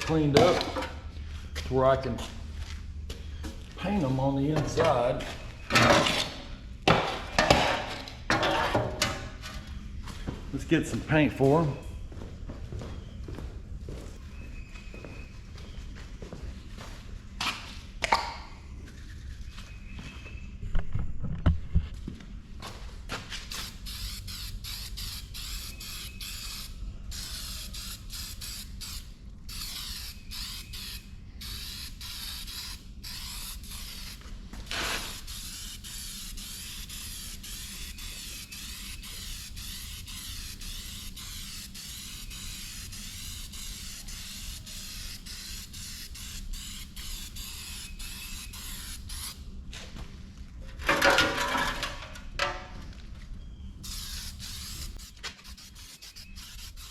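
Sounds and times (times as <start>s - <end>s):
aerosol spray can hissing: 23.5s - 34.2s, 34.9s - 49.4s, 53.8s - 56.9s.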